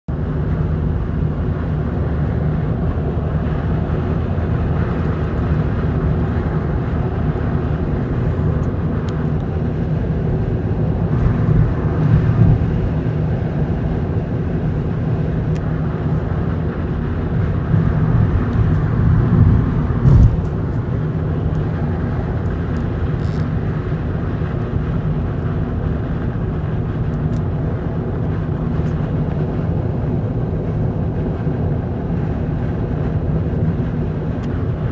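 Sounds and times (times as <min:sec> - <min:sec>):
road noise: 0:00.1 - 0:34.9
wind noise in car cabin: 0:00.1 - 0:34.9.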